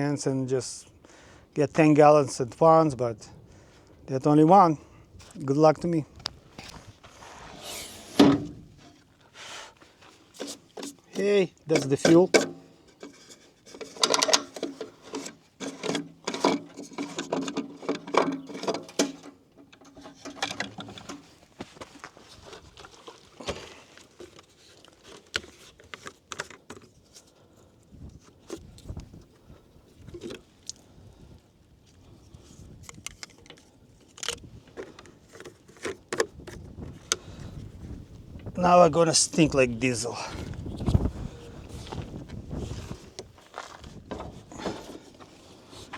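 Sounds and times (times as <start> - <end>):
jerry can clicks and knocks: 10.4 - 21.2, 32.9 - 37.3.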